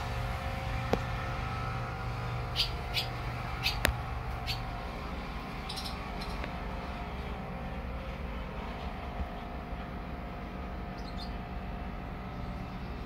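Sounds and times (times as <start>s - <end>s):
low background rumble: 0.0s - 13.0s
small bird chirping: 2.5s - 4.7s, 5.6s - 6.5s, 10.9s - 11.4s.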